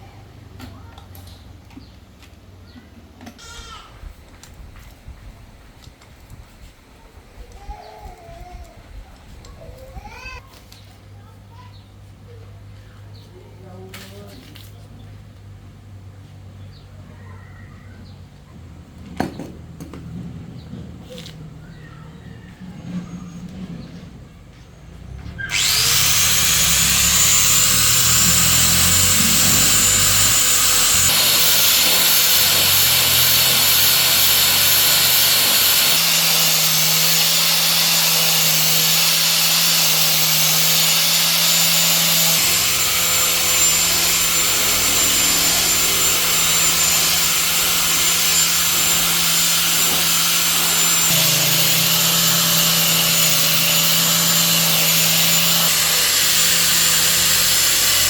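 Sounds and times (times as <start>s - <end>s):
power tool hiss and whine: 25.4s - 58.0s.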